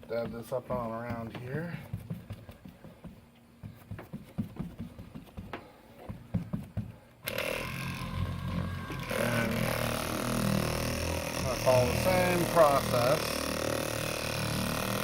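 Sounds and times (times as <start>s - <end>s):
handling taps and knocks: 0.0s - 7.2s
electric buffer motor hum: 7.2s - 15.0s.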